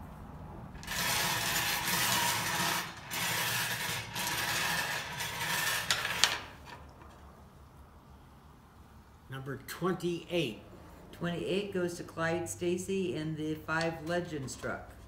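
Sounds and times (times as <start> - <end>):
draw balls rattling: 0.8 - 6.8.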